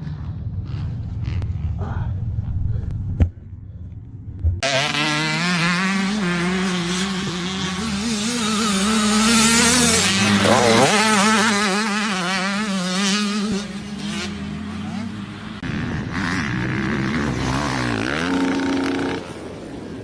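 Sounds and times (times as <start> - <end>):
dirt bike engine revving: 4.6 - 19.6.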